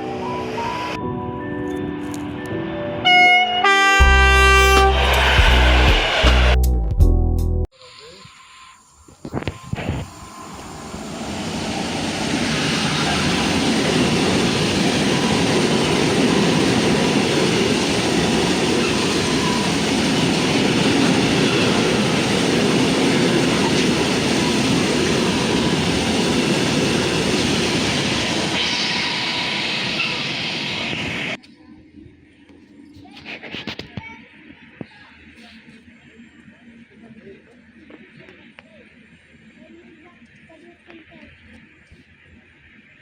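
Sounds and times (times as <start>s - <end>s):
train rumbling on rails: 2.3s - 6.6s, 9.7s - 31.4s
bright hiss: 7.7s - 13.0s.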